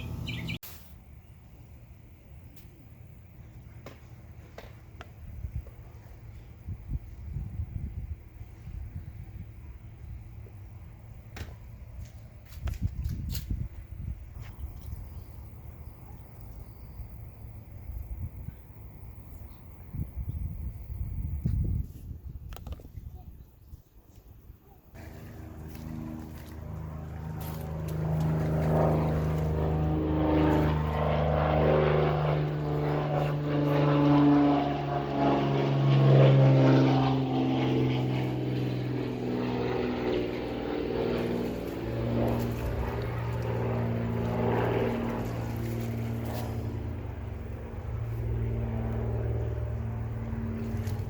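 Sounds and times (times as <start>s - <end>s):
motor engine droning past: 25.0s - 51.0s.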